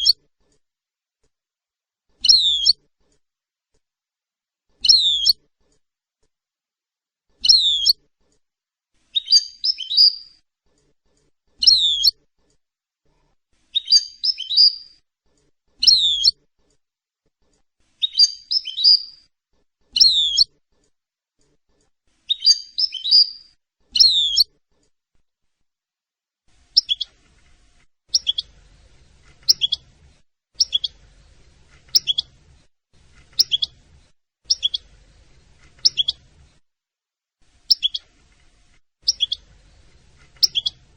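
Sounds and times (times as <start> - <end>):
goldfinch chirps: 2.2 - 2.8, 4.8 - 5.4, 7.4 - 8.0, 9.1 - 10.4, 11.6 - 12.2, 13.7 - 15.0, 15.8 - 16.4, 18.0 - 19.3, 19.9 - 20.5, 22.2 - 24.5, 26.7 - 27.2, 28.1 - 30.0, 30.6 - 32.4, 33.0 - 36.4, 37.6 - 40.9.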